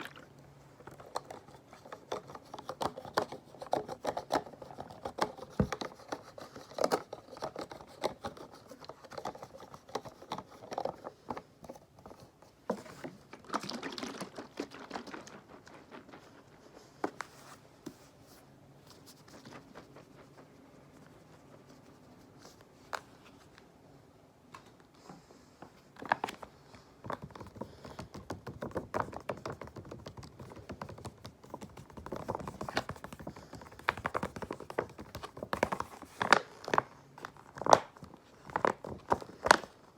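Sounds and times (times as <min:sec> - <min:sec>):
tapping on sponges: 0:27.0 - 0:36.9.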